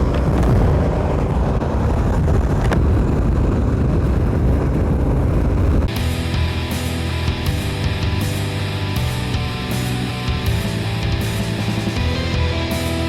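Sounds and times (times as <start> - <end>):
vehicle engine and road noise: 0.0 - 13.0
music: 5.9 - 13.0.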